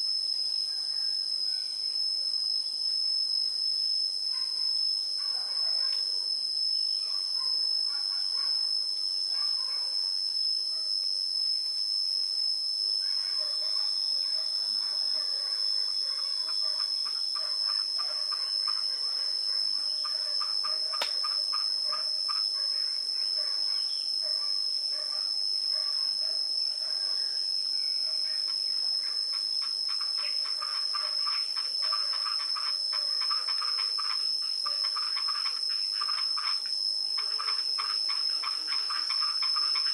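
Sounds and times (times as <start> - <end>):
high-pitched insect drone: 0.0 - 39.9
insects pulsing trill: 0.0 - 39.9
sharp click: 21.0 - 21.3.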